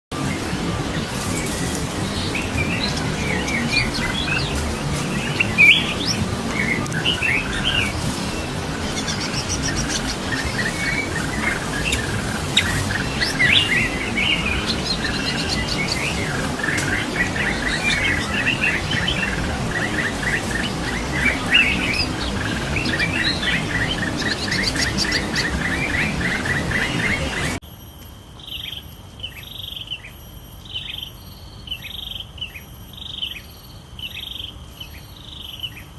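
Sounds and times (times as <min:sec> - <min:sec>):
birds chirping: 0:00.1 - 0:27.6
fast run of repeated bird notes: 0:00.1 - 0:27.6
low background noise: 0:00.2 - 0:35.9.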